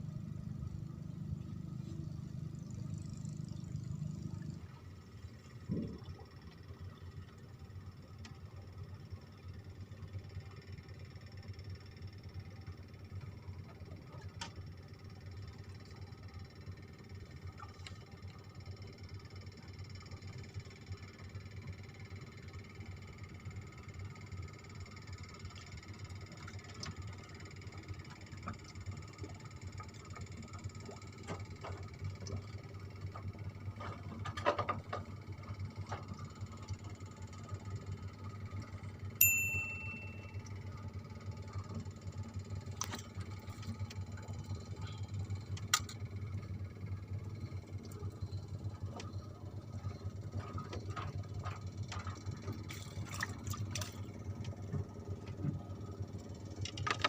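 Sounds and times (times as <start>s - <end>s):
steady low hum: 0.0s - 57.0s
bright metallic ding: 39.2s - 40.4s
faint high chirring: 39.2s - 40.6s.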